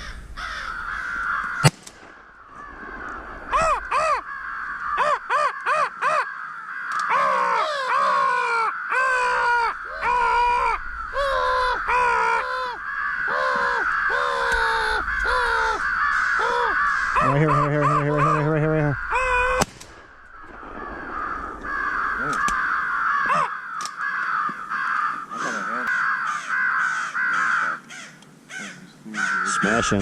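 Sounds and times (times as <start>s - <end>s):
crows cawing: 0.0s - 30.0s
shotgun shot: 1.6s - 2.3s.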